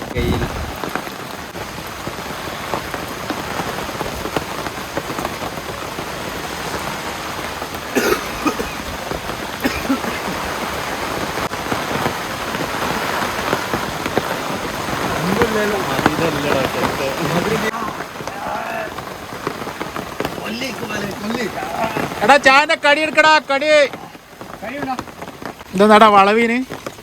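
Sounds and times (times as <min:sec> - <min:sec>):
rain pattering: 0:00.0 - 0:27.0
person coughing: 0:07.9 - 0:08.8, 0:09.6 - 0:10.3.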